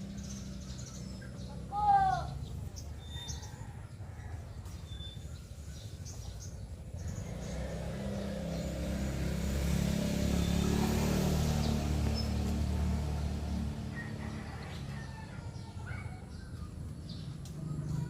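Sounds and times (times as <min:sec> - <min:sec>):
vehicle engine driving past: 0:00.0 - 0:18.0.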